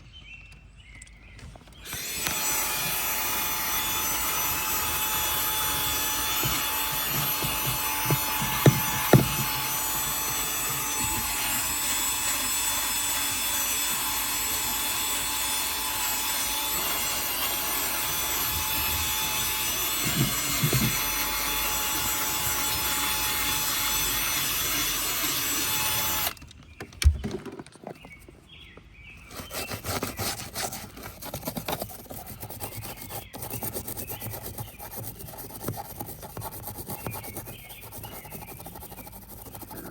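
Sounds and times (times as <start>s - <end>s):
cleaning machine motor whining: 1.8s - 26.4s
scrubbing and rubbing: 1.9s - 14.0s, 16.4s - 25.0s, 29.2s - 39.9s.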